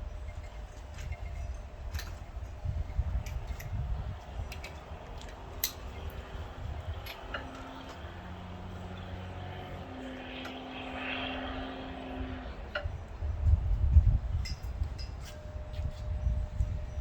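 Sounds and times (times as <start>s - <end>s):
metal tools clinking: 0.0s - 9.3s, 14.3s - 16.0s.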